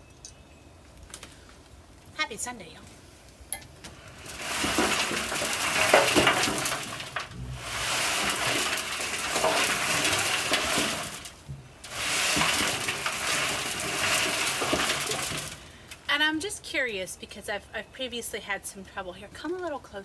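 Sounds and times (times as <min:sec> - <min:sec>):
compost sliding inside tumbler drum: 0:03.9 - 0:16.3.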